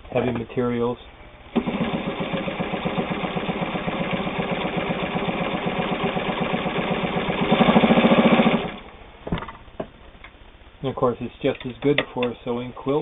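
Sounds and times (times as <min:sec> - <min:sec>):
sewing machine stitching leather: 0:01.5 - 0:08.9.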